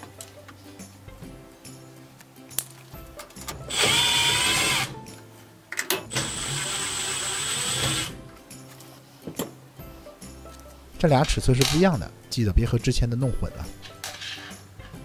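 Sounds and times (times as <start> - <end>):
electric screwdriver whine: 3.7 - 4.9, 6.1 - 8.2.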